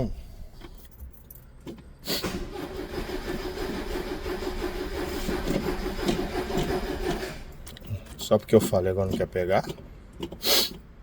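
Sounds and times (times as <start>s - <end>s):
starter cranking engine: 2.2s - 8.4s.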